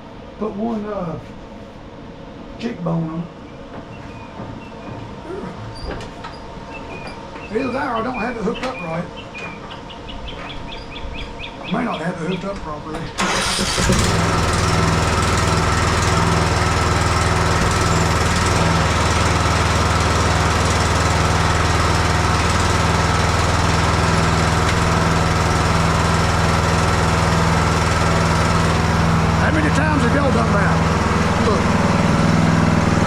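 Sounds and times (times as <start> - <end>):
riding mower engine starting: 13.0 - 33.0.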